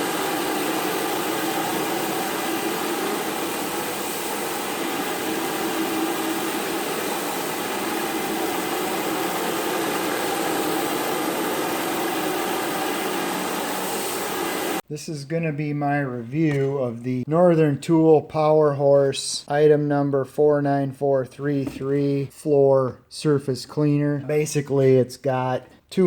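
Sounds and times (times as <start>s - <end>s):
pressure washer running: 0.0s - 14.8s
water spraying hiss: 0.0s - 14.8s.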